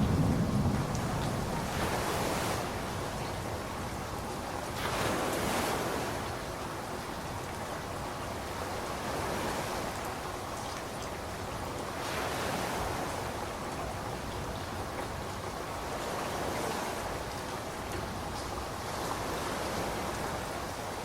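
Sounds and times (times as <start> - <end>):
steady rainfall: 0.0 - 21.0.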